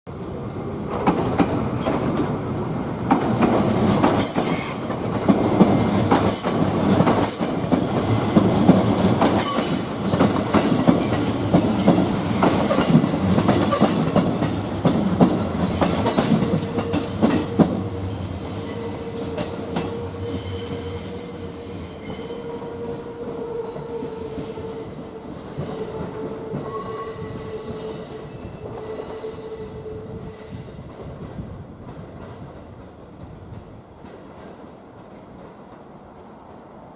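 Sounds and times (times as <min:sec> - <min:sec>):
train wheels clicking over rail joints: 0:03.0 - 0:22.3
train wheel squeal: 0:03.6 - 0:04.9, 0:06.3 - 0:07.8, 0:09.4 - 0:09.9, 0:15.6 - 0:30.9.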